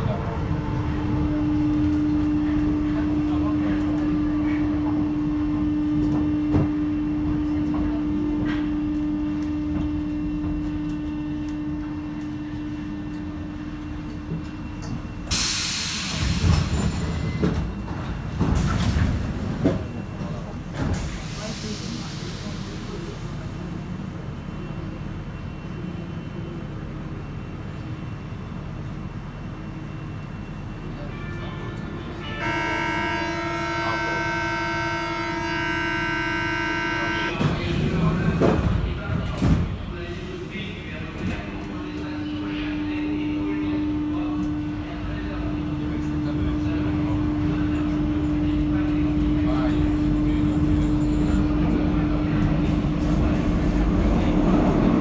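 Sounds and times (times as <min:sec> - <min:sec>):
train hum and rumble: 0:00.0 - 0:55.0
loud hiss of air: 0:15.3 - 0:17.1
train door warning buzzer: 0:32.3 - 0:37.6.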